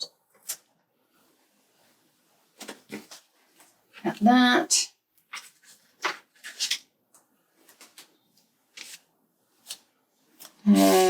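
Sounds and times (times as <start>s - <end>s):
paper rustling: 2.6s - 4.2s, 5.2s - 6.9s, 7.6s - 10.6s.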